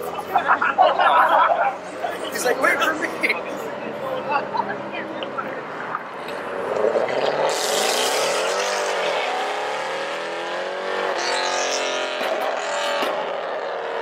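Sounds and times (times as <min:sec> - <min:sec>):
car engine revving hard: 0:06.3 - 0:14.0.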